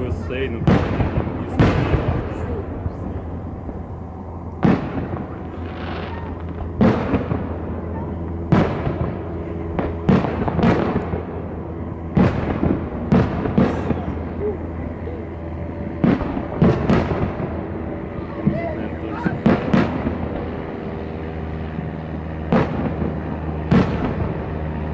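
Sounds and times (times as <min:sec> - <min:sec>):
fireworks booming: 0:00.0 - 0:24.9.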